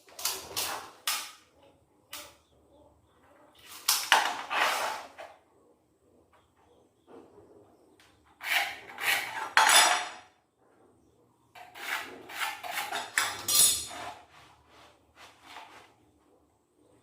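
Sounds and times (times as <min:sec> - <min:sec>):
scraping strokes on wood: 0:08.4 - 0:09.6, 0:11.6 - 0:16.0.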